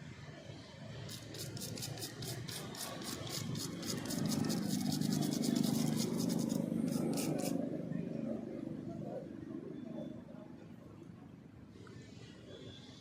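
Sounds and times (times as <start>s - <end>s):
rapid mechanical clicking: 1.0s - 7.6s.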